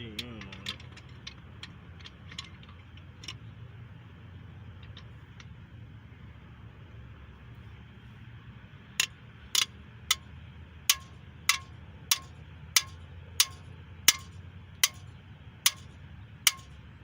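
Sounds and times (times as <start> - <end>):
hammer tapping metal tool: 10.9 - 15.1, 15.7 - 15.9, 16.5 - 16.8.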